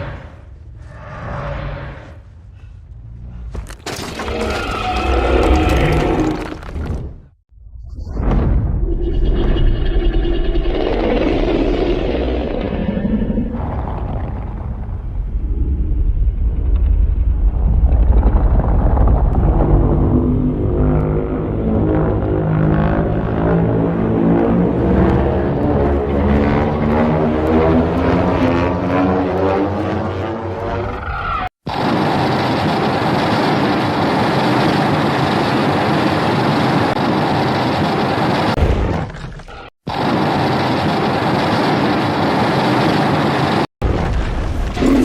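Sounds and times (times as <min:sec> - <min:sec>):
loud deep rumble: 0:08.2 - 0:30.6.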